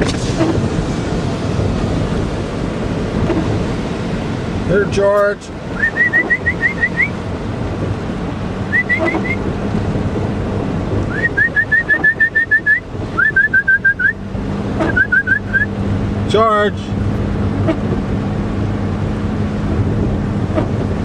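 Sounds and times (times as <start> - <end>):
vehicle driving hum: 0.0 - 21.0
person whistling for dog: 5.8 - 7.1, 8.7 - 9.4, 11.1 - 14.2, 14.8 - 15.7.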